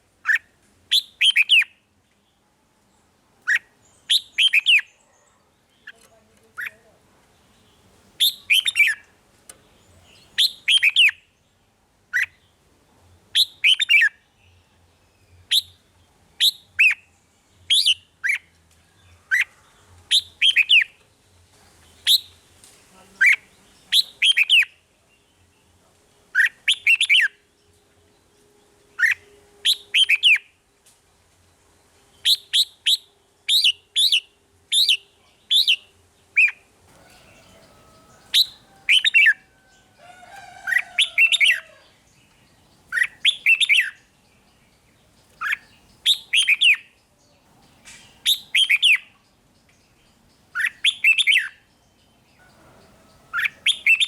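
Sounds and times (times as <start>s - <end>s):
bird singing whistled notes: 0.2s - 1.8s, 3.4s - 5.0s, 8.2s - 9.0s, 10.1s - 11.4s, 13.3s - 19.5s, 20.1s - 21.0s, 21.9s - 22.4s, 23.2s - 25.6s, 26.3s - 30.6s, 32.1s - 39.9s, 40.7s - 54.0s.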